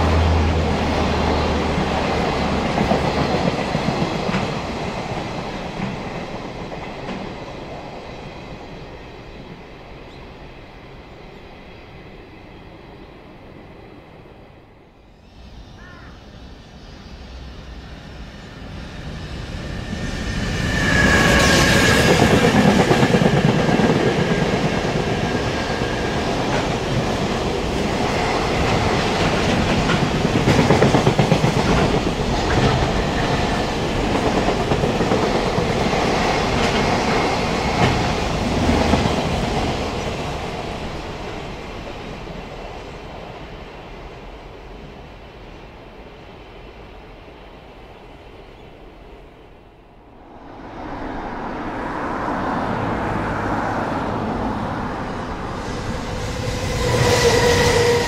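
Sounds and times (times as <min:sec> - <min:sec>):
freight train passing loudly: 0:00.0 - 0:58.0
high steady squeal: 0:15.1 - 0:22.6.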